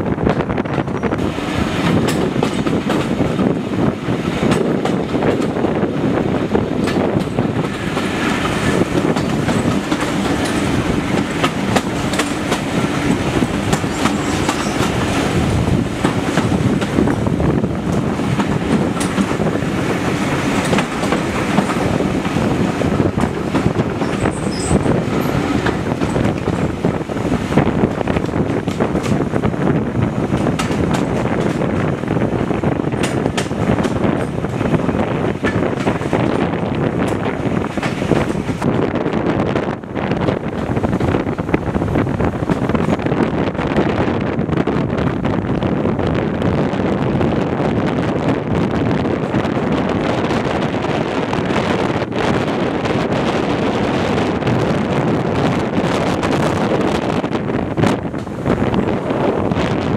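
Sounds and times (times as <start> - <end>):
train wheels rumbling on rails: 0.0 - 59.9
wheels clattering over rail joints: 0.2 - 3.5, 6.4 - 38.8.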